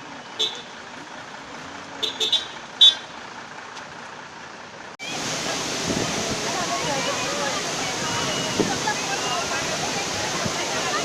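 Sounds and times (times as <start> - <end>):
road traffic: 0.0 - 11.0
vehicle horn beeps: 0.2 - 0.7, 2.0 - 3.1.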